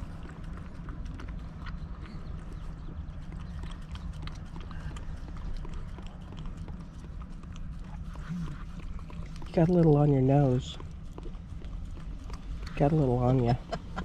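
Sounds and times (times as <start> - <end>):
dog licking: 0.0 - 14.0
low steady hum: 0.0 - 14.0.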